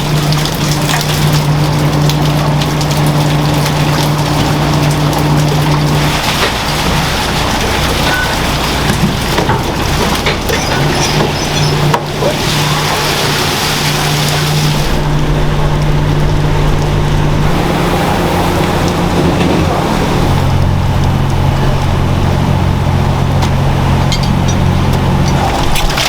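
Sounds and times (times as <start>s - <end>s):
deep machinery rumble: 0.0s - 26.0s
machinery hum: 0.0s - 26.0s
loud rushing hiss: 17.4s - 21.0s.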